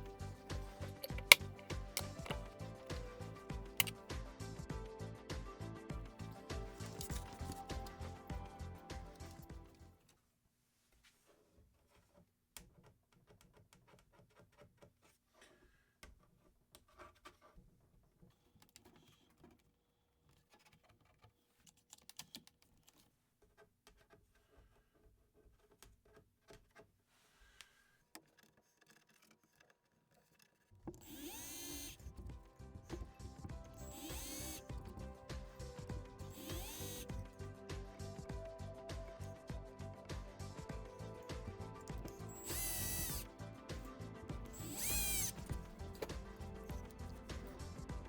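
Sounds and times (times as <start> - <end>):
clicks and knocks of tools: 0.0 - 4.0, 6.3 - 8.2
power drill-driver spinning: 0.0 - 4.0, 6.2 - 9.8, 30.9 - 37.3, 41.0 - 47.6.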